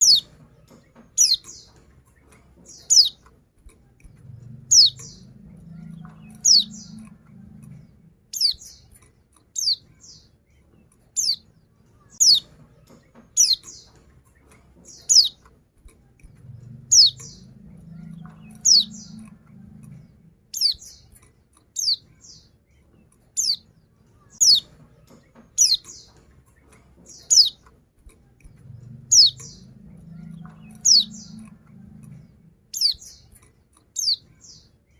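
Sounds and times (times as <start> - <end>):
bird calling sharp chirps: 0.0 - 0.3, 1.2 - 1.7, 2.7 - 3.2, 4.7 - 5.3, 5.9 - 7.2, 9.6 - 10.2, 12.2 - 12.5, 13.4 - 13.9, 14.9 - 15.4, 20.5 - 21.0, 24.4 - 24.7, 25.6 - 26.1, 27.1 - 27.6, 32.7 - 33.3.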